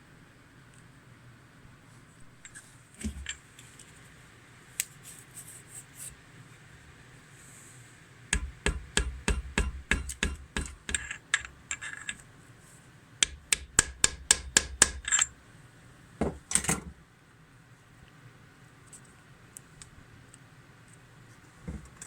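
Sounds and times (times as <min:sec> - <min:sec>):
hand tool tapping on metal: 0:08.4 - 0:11.5, 0:13.2 - 0:15.3.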